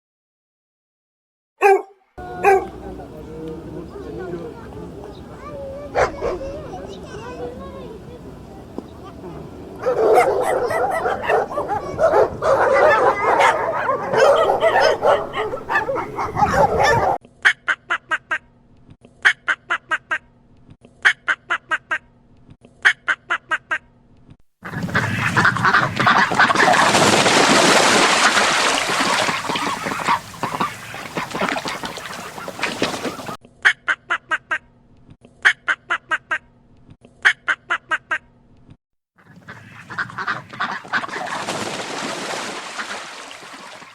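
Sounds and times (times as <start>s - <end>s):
ducks quacking: 24.6s - 27.2s, 28.2s - 34.6s, 39.2s - 41.8s, 42.6s - 43.9s
flock of birds calling: 28.3s - 33.4s.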